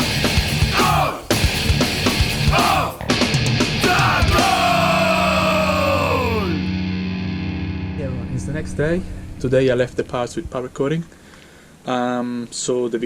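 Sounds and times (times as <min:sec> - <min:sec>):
heavy rock music: 0:00.0 - 0:10.6
shouted vocals: 0:00.6 - 0:01.3, 0:02.4 - 0:03.0, 0:03.7 - 0:06.7.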